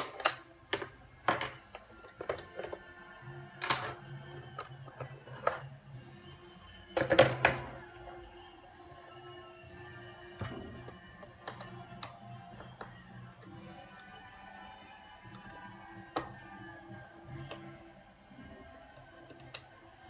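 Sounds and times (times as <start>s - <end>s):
hard plastic parts clicking: 0.0s - 2.9s, 3.5s - 5.7s, 6.9s - 8.0s, 10.3s - 14.3s, 15.2s - 20.0s.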